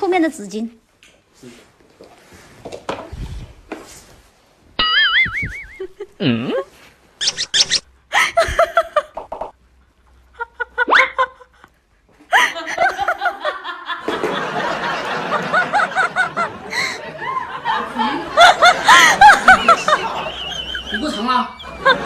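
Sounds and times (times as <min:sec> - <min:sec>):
person laughing: 0:04.8 - 0:09.5, 0:12.3 - 0:14.0, 0:15.5 - 0:22.0.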